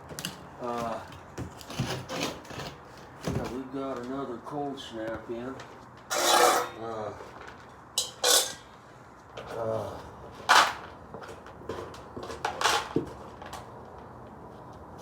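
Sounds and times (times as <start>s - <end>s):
short clattering or scraping noises: 6.1s - 7.6s.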